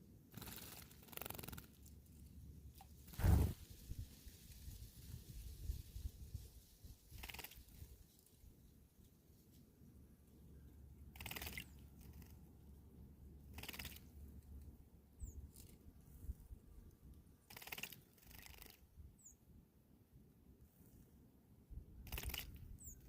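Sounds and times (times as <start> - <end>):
small bird chirps: 11.1 - 12.4, 13.5 - 14.1, 15.2 - 15.8, 17.5 - 19.4, 22.0 - 23.0.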